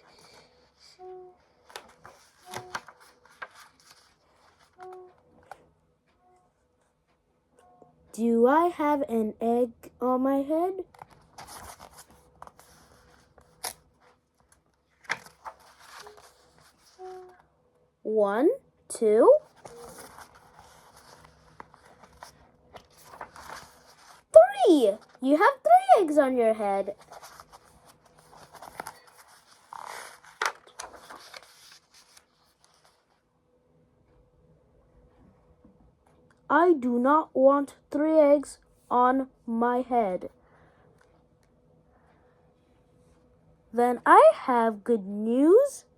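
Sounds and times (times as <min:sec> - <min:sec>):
paper pages turning: 0:01.6 - 0:05.6, 0:10.9 - 0:17.4, 0:19.4 - 0:25.6, 0:26.7 - 0:33.2.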